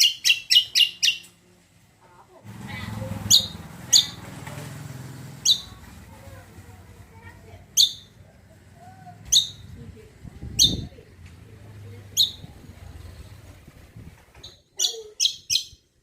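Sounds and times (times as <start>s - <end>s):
bird calling high sharp notes: 5.4s - 5.8s, 7.8s - 8.2s, 9.2s - 9.7s.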